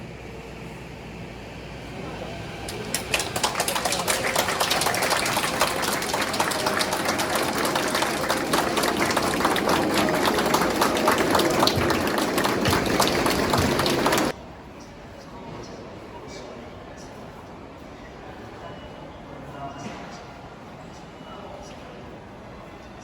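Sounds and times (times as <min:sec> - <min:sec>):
crowd murmur: 0:01.8 - 0:14.4
clatter of rapid clicks: 0:02.7 - 0:14.3.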